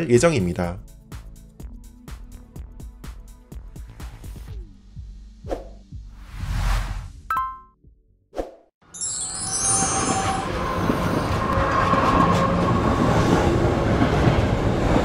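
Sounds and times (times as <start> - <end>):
train wheels squealing: 9.0 - 13.6
train rumbling on rails: 9.3 - 15.0.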